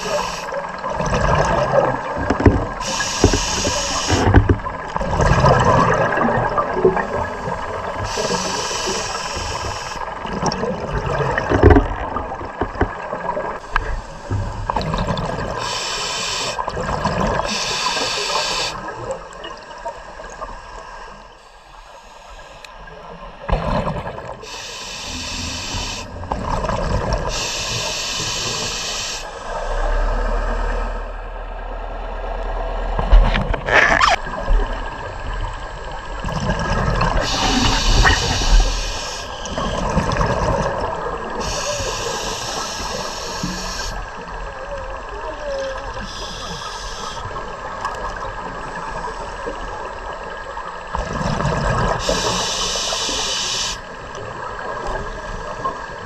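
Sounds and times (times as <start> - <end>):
diver breathing through regulator: 0.0 - 0.6, 2.8 - 4.4, 7.1 - 10.2, 13.6 - 16.7, 17.4 - 18.9, 21.4 - 22.8, 24.4 - 26.3, 27.2 - 31.1, 37.0 - 44.2, 45.9 - 47.3, 51.9 - 53.9
underwater bubbling: 0.0 - 56.0.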